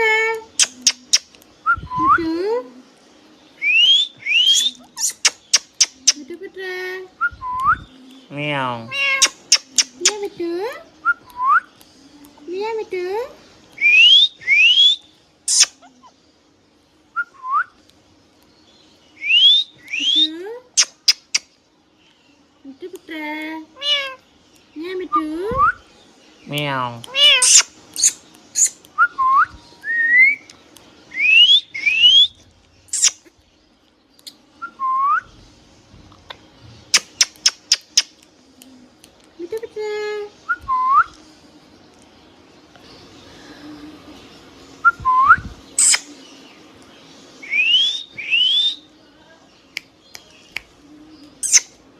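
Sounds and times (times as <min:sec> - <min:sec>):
parrot chirp: 0:00.0 - 0:01.3, 0:03.6 - 0:06.3, 0:08.7 - 0:10.2, 0:13.8 - 0:16.1, 0:19.2 - 0:21.5, 0:26.4 - 0:30.5, 0:31.1 - 0:33.3, 0:36.9 - 0:38.2, 0:44.9 - 0:46.4, 0:47.4 - 0:48.9, 0:51.4 - 0:51.8
parrot whistling: 0:00.6 - 0:01.3, 0:03.6 - 0:06.2, 0:09.0 - 0:10.2, 0:13.8 - 0:15.8, 0:19.2 - 0:21.4, 0:27.1 - 0:30.4, 0:31.1 - 0:33.2, 0:36.9 - 0:38.1, 0:44.8 - 0:46.2, 0:47.4 - 0:48.8, 0:51.4 - 0:51.7
sharp short chirps: 0:00.6 - 0:01.3, 0:03.8 - 0:06.2, 0:09.2 - 0:10.2, 0:15.5 - 0:15.8, 0:27.3 - 0:28.8, 0:32.9 - 0:33.2, 0:36.9 - 0:38.1, 0:45.8 - 0:46.2, 0:51.4 - 0:51.7
harsh pitched call: 0:27.2 - 0:28.8.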